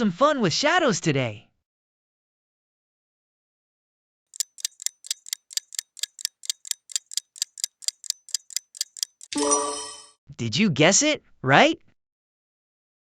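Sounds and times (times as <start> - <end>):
countdown timer ticking: 4.4 - 9.8.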